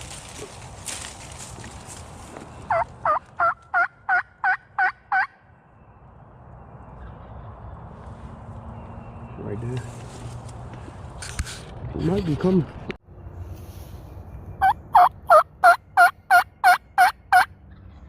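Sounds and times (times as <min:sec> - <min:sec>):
turkey call yelps: 0:02.7 - 0:05.3, 0:14.6 - 0:17.5.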